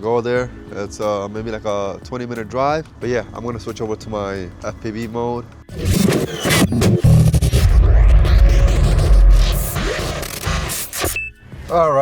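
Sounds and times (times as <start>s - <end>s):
music: 0.0s - 12.0s
rising whoosh: 5.7s - 11.0s
deep bass boom: 6.7s - 10.9s.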